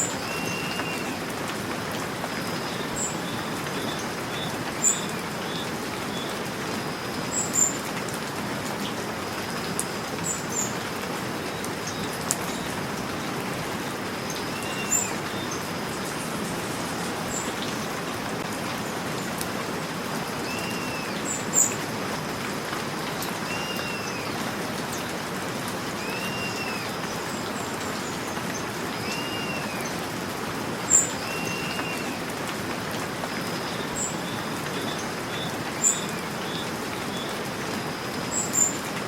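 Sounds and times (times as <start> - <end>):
bird calling: 0.0 - 1.3, 11.5 - 16.4, 20.4 - 21.8, 26.0 - 27.0, 29.0 - 30.0, 30.9 - 32.3
steady rainfall: 0.0 - 39.0.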